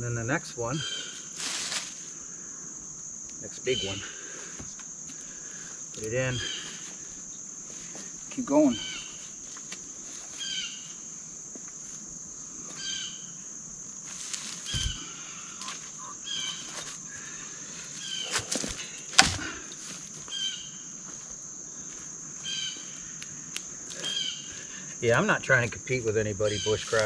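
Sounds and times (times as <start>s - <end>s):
insects droning: 0.0s - 27.0s
bird chirping: 8.7s - 9.2s, 14.7s - 16.9s
logs thumping and knocking: 14.7s - 15.0s, 18.3s - 19.7s.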